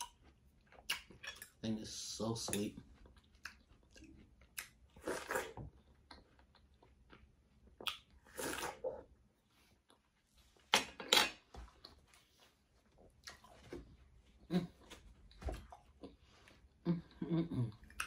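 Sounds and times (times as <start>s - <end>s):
person chewing watermelon: 0.0s - 1.6s, 2.5s - 11.1s, 12.8s - 15.0s, 17.6s - 18.0s.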